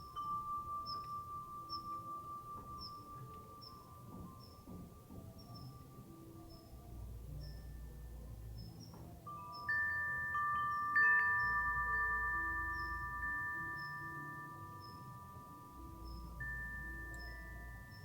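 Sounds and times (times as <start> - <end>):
wind chime ringing: 0.0 - 18.0.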